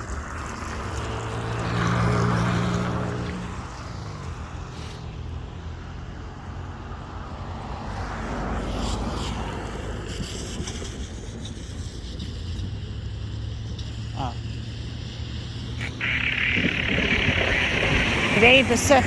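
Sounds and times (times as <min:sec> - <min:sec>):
passing vehicle rumbling: 0:00.0 - 0:19.0
wind noise on microphone: 0:08.5 - 0:19.0.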